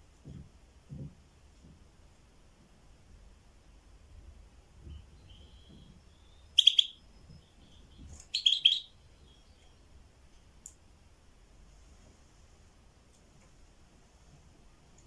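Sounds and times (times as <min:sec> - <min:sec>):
bird chirping: 0:04.8 - 0:10.0.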